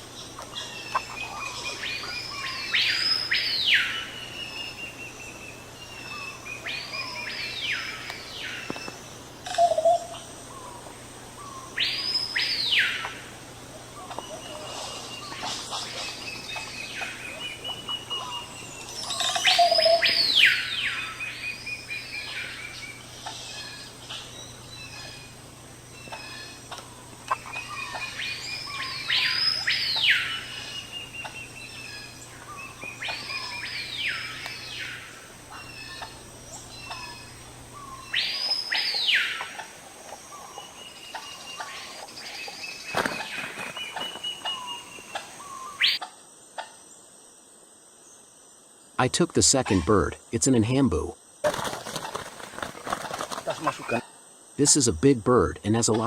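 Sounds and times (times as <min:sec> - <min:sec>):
bird call sweeping up and down: 0:00.0 - 0:10.8, 0:11.4 - 0:13.3, 0:13.9 - 0:25.4, 0:26.0 - 0:46.1
faint low hum: 0:00.0 - 0:45.9.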